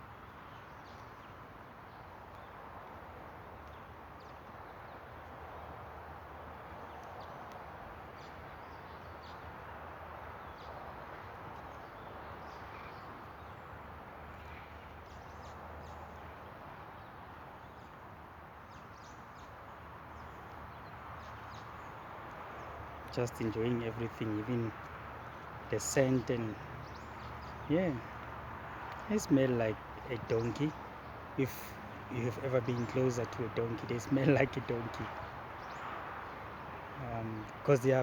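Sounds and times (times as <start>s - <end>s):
faint bird chirps: 11.8s - 13.6s.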